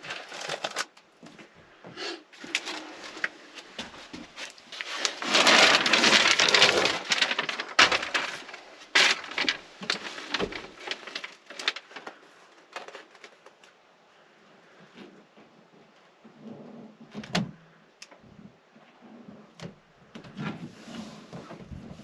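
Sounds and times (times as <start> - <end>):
foil sheets crackling and crinkling: 0.0 - 1.2, 2.4 - 13.8.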